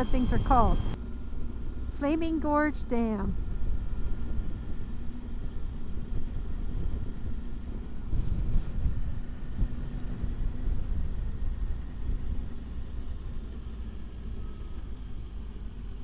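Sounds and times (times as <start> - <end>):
motorcycle engine rumble: 0.0 - 1.9
wind noise on microphone: 3.3 - 13.7.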